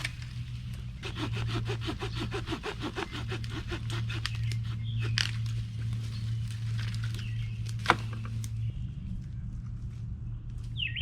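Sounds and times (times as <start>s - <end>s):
steady low hum: 0.0s - 11.0s
hand saw cutting wood: 1.0s - 5.5s.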